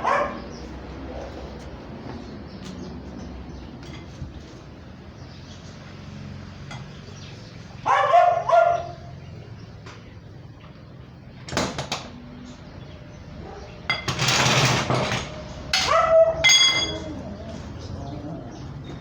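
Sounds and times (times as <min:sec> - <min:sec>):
dog yelping whines: 0:07.9 - 0:09.0, 0:15.8 - 0:17.7.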